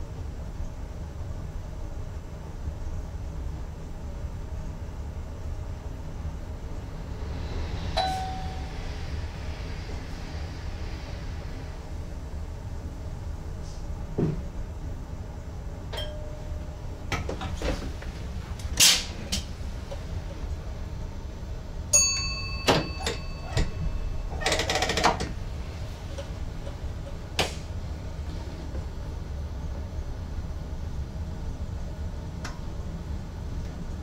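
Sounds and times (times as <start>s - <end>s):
electric train rumbling: 0.0s - 34.0s
ringing chime: 22.0s - 24.4s.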